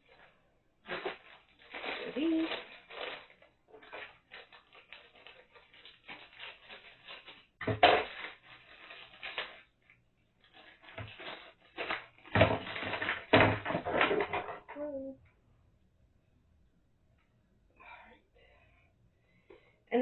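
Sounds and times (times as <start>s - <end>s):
plastic parts rattling and clicking: 0.9s - 9.7s, 10.4s - 14.8s.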